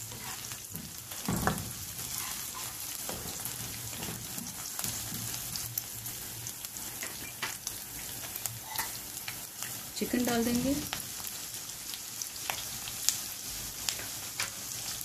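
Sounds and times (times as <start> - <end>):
spatula tapping and scraping a pan: 0.0 - 5.4
garlic and chillies sizzling in oil: 0.0 - 15.0.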